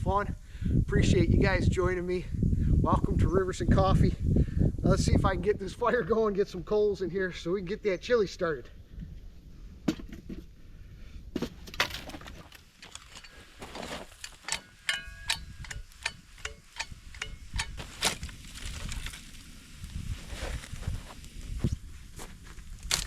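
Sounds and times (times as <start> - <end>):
dry wood cracking and snapping: 11.4 - 14.7, 15.3 - 23.0.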